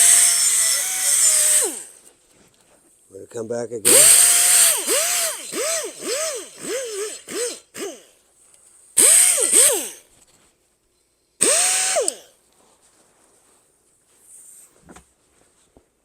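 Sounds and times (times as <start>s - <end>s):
air die grinder whining on metal: 0.0s - 2.0s, 3.9s - 8.1s, 9.0s - 10.0s, 11.4s - 12.2s.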